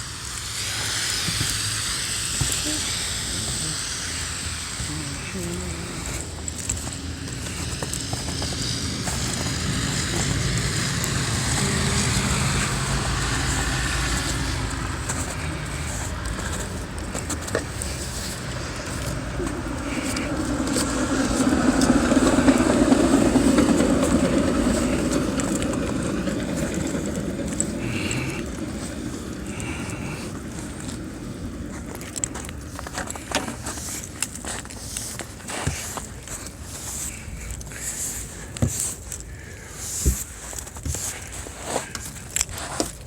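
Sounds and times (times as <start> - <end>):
cars driving past: 6.0 - 32.9.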